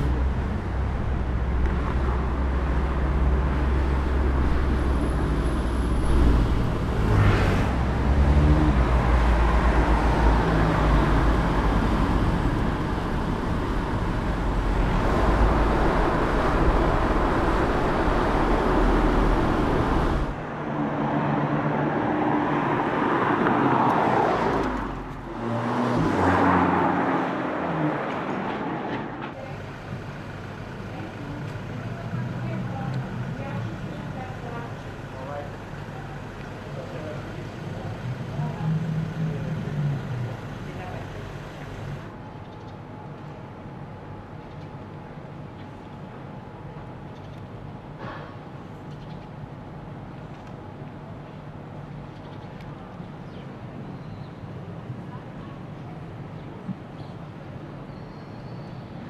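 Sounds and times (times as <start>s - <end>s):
car passing by: 3.6s - 29.2s.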